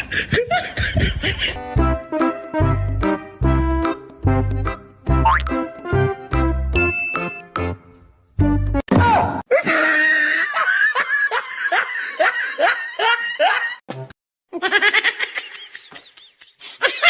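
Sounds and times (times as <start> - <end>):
person laughing: 0.0 - 1.8, 9.5 - 13.8, 14.5 - 17.0
music: 1.6 - 8.8, 13.9 - 14.1.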